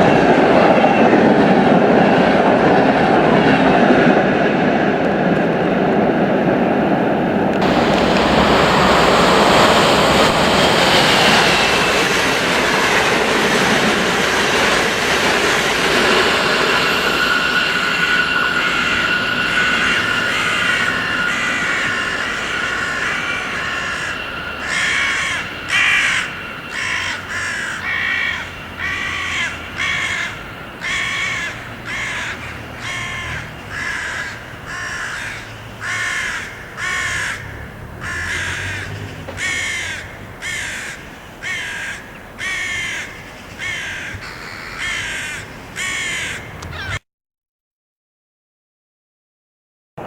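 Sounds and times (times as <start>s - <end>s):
crow cawing: 18.4s - 47.0s.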